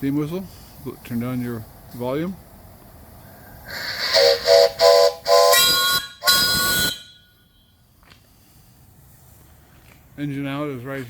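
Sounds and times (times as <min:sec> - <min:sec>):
steam whistle blasts: 0:03.7 - 0:07.7.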